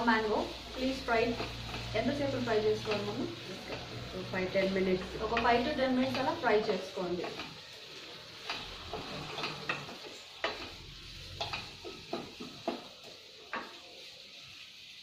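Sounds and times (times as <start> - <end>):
food sizzling in oil: 0.0 - 15.0
wooden spatula knocking on pan: 11.4 - 12.9, 13.5 - 13.8.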